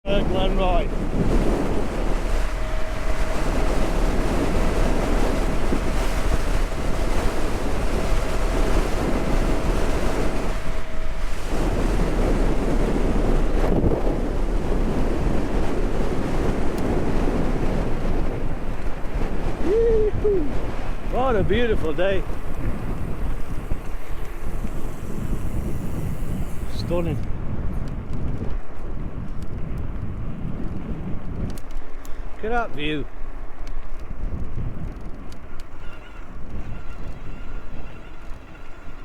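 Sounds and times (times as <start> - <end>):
wind buffeting microphone: 0.0 - 39.0
faint steady tone: 35.4 - 39.0.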